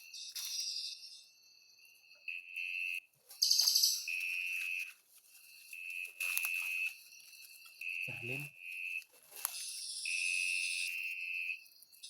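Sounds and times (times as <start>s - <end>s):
songbird whistling and trilling: 3.4s - 4.2s.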